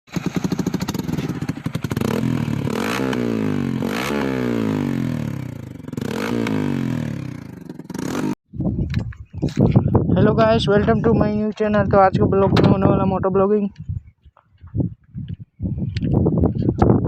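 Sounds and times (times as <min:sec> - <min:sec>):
motorcycle engine revving: 0:00.1 - 0:08.4.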